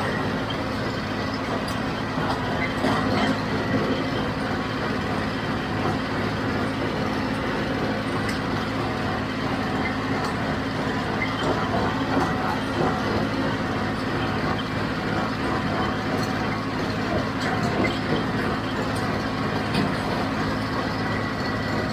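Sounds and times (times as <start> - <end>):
tractor diesel engine under load: 0.0 - 21.9.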